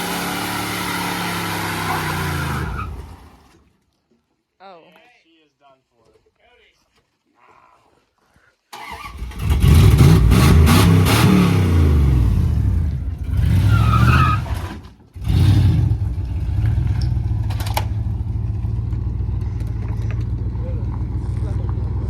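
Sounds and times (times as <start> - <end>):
vehicle engine revving: 0.0 - 3.4, 8.8 - 22.0.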